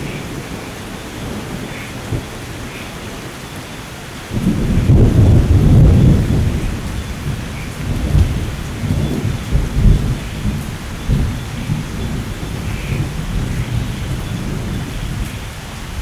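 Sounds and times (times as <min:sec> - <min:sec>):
steady rain: 0:00.0 - 0:16.0
thunder rumbling: 0:04.3 - 0:16.0.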